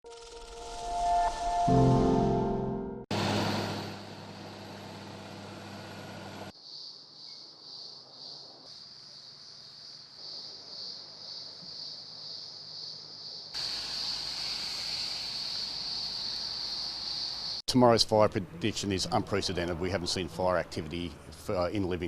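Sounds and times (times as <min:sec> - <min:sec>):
high insect chorus pulsing: 0:06.5 - 0:17.6.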